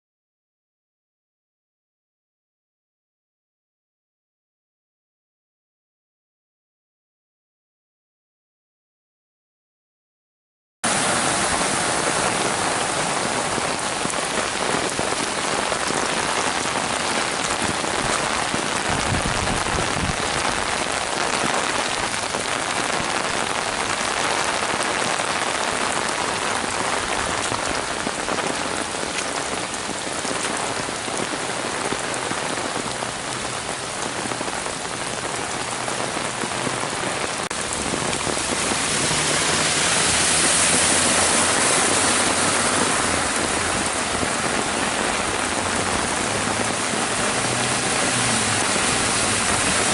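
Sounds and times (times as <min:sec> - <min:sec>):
heavy rain pouring: 0:10.8 - 0:49.9.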